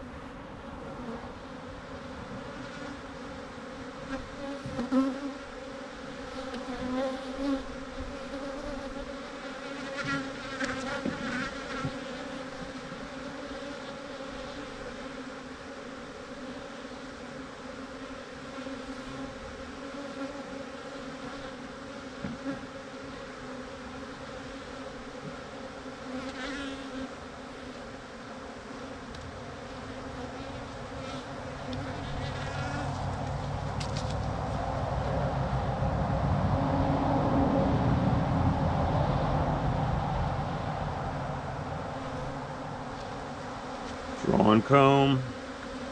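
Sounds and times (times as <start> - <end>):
honeybees buzzing: 0.0 - 45.9.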